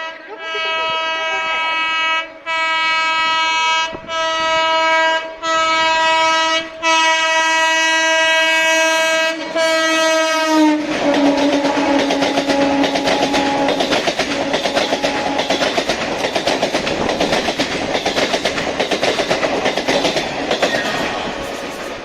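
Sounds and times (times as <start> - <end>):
train horn blasts: 0.0 - 15.8
train wheels clickety-clack: 9.0 - 22.0.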